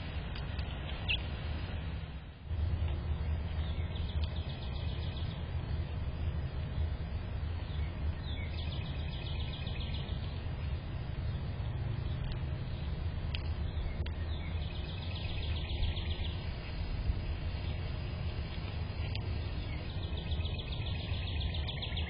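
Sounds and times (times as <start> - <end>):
steady low rumble: 0.0 - 22.0
songbird trilling: 1.0 - 1.3, 3.3 - 5.4, 7.6 - 10.4, 13.6 - 16.8, 18.6 - 22.0.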